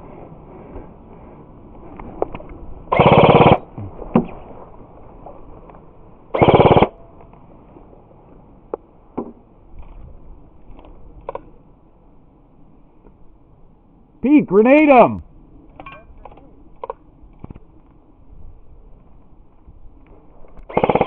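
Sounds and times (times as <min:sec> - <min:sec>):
airsoft rifle full-auto bursts: 0:02.9 - 0:03.6, 0:06.4 - 0:06.9, 0:20.7 - 0:21.0.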